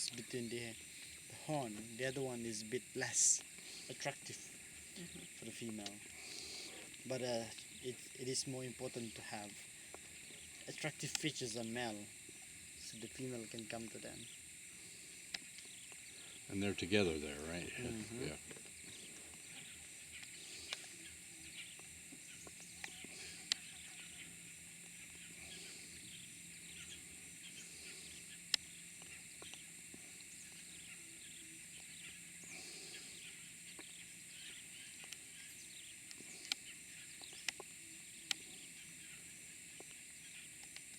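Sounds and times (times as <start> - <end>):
faint bird chirps: 0.0 - 40.9
high insect drone: 0.0 - 40.9
sharp clicks: 10.9 - 11.4, 36.0 - 38.5.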